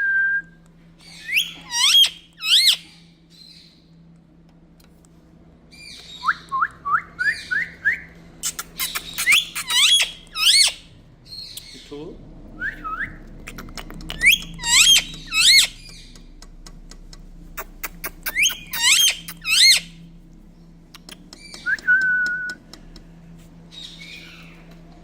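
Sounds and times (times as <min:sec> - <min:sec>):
parakeet whistled calls: 0:01.0 - 0:03.8, 0:05.8 - 0:11.8, 0:14.2 - 0:16.1, 0:17.9 - 0:20.0
parakeet clicks: 0:13.4 - 0:19.6, 0:20.9 - 0:23.1.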